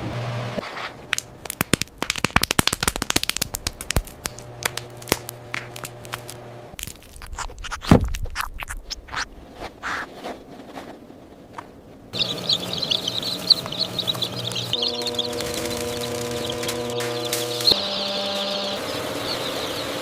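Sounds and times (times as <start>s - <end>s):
crackling clicks and taps: 1.1s - 9.3s
low steady hum: 2.9s - 7.3s, 12.0s - 20.0s.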